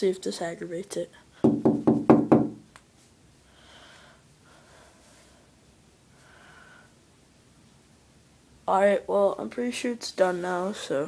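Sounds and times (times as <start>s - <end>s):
knocks on a window pane: 1.4s - 2.6s
faint breaths: 3.4s - 7.0s.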